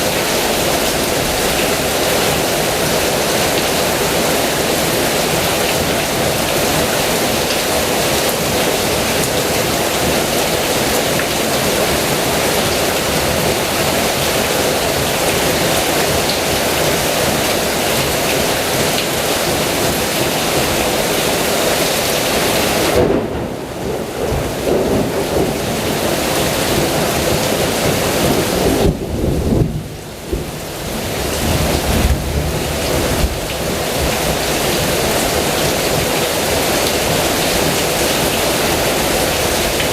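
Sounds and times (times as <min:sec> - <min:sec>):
heavy rain pouring: 0:00.0 - 0:39.9
low thunder rumbling: 0:22.9 - 0:35.0.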